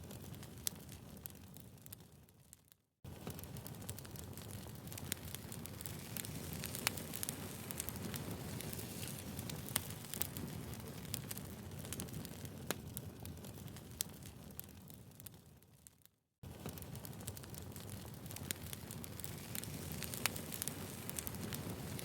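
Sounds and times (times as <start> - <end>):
fire crackles and pops: 0.0 - 22.0
firewood burning: 0.0 - 22.0.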